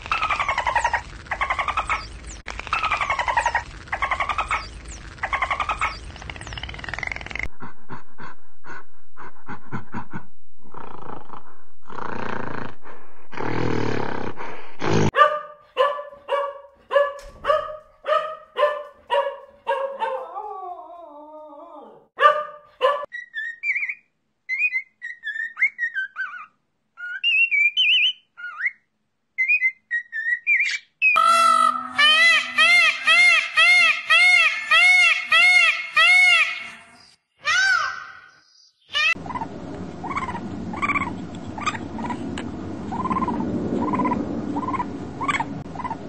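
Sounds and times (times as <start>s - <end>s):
clicks and noisy bursts: 0.0s - 7.5s
dog barking: 15.2s - 20.4s, 22.2s - 23.1s.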